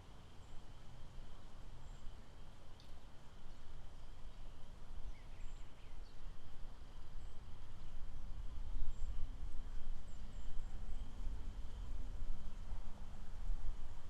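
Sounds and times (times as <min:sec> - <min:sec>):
insect hum: 0:00.0 - 0:14.0.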